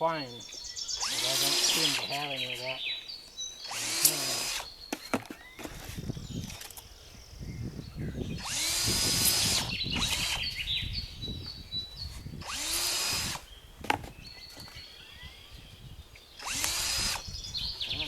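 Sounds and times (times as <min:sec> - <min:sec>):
electric drill boring gourd: 0:00.9 - 0:02.4, 0:03.6 - 0:04.8, 0:08.3 - 0:10.7, 0:12.4 - 0:13.5, 0:16.4 - 0:17.4.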